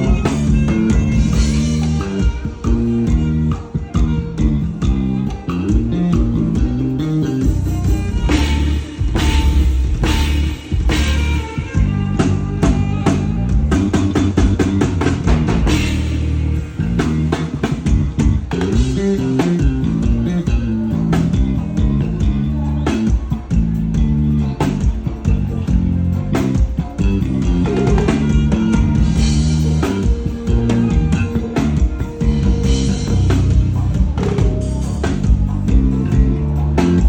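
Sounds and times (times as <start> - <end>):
bass line: 0.0 - 37.0
guitar: 0.0 - 37.0
drum kit rapid hits: 5.8 - 22.4.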